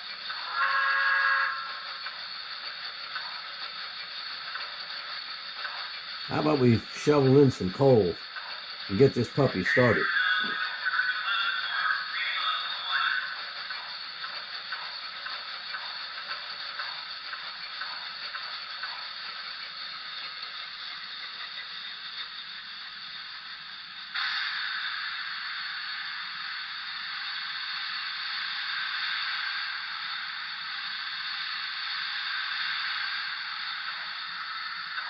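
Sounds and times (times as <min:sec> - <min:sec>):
steam hiss: 0:00.0 - 0:35.0.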